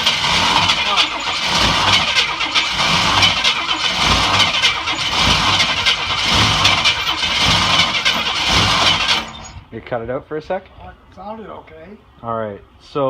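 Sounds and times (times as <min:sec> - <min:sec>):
car engine cranking and running: 0:00.0 - 0:09.7.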